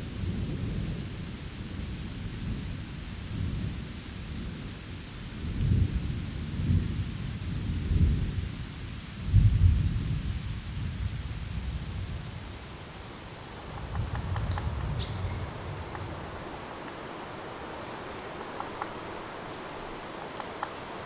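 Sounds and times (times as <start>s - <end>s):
rain hiss: 0.0s - 21.0s
low rolling thunder: 9.3s - 21.0s.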